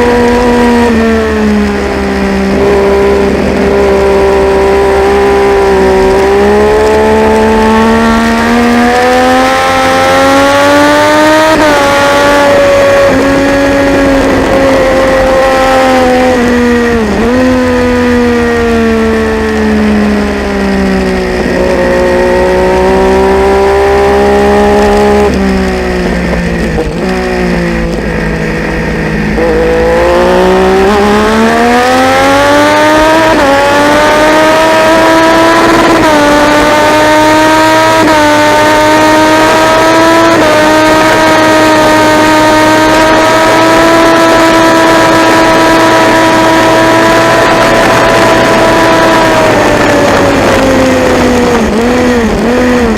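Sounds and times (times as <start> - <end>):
motorcycle engine revving at speed: 0.0 - 52.9.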